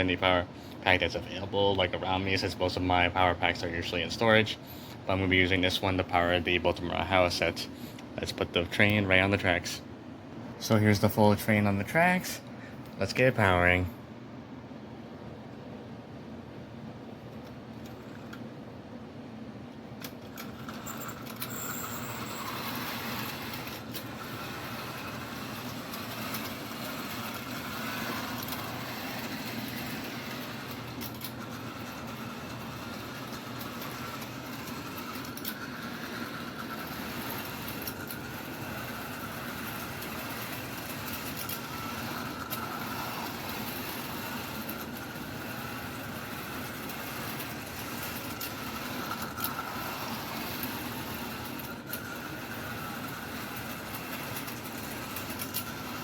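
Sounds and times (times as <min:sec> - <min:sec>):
track clicks: 0:19.8 - 0:56.0
wheels rattling on rails: 0:20.2 - 0:56.0
small electric motor whirring: 0:20.3 - 0:56.0.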